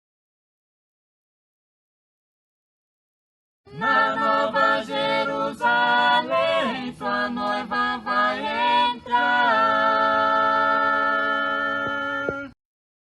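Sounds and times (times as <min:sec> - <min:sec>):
voices singing a cappella: 0:03.7 - 0:12.6.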